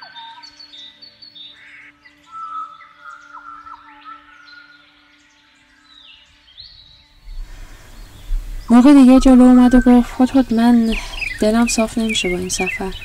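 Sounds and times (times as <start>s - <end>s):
birds chirping: 0.0s - 13.0s
low rushing noise: 7.2s - 13.0s
low steady drone: 7.2s - 13.0s.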